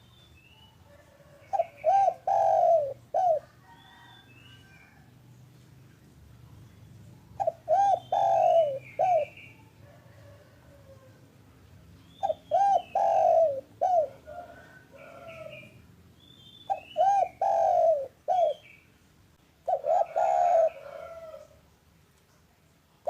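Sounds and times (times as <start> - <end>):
small birds chirping: 0.0 - 10.4, 11.8 - 19.0
dove cooing: 0.9 - 5.0, 7.3 - 11.2, 12.1 - 15.8, 16.7 - 18.7, 19.6 - 21.6.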